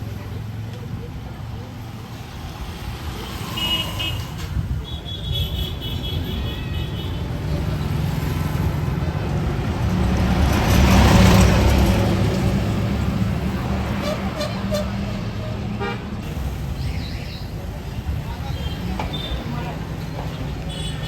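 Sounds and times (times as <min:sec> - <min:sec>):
vehicle passing: 0:07.2 - 0:15.5.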